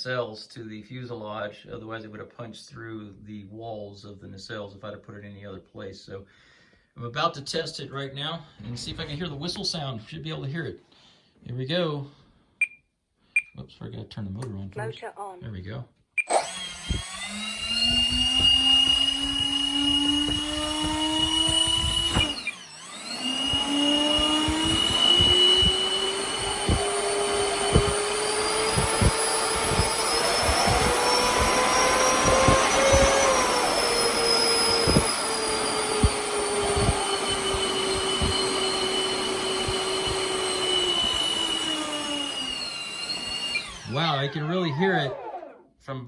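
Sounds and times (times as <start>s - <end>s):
electric ducted fans whining: 16.4s - 45.6s.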